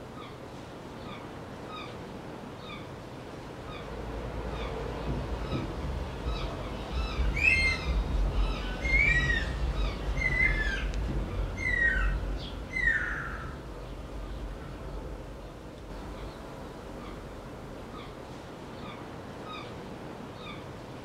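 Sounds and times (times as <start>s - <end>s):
steady low rumble: 3.9s - 18.2s
bird calling: 4.6s - 14.4s.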